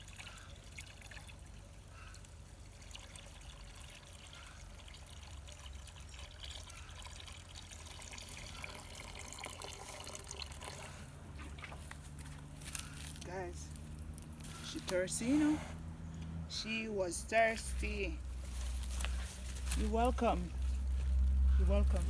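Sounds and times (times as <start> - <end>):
water trickling and sloshing: 0.0 - 14.6
cow drinking from bucket: 0.0 - 16.0.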